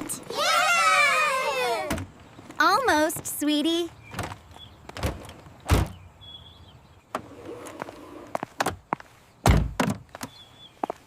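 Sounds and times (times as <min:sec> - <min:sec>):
car door thuds: 0:09.4 - 0:10.0.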